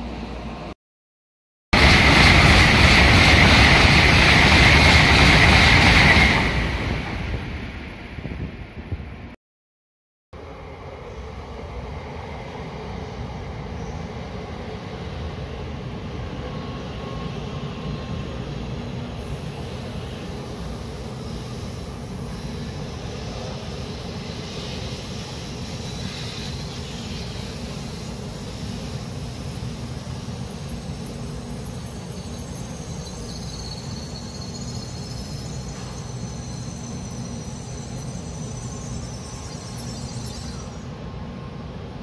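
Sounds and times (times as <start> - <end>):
train running noise: 1.8 - 9.4, 10.4 - 42.0
faint high wavering squeal: 19.2 - 41.1.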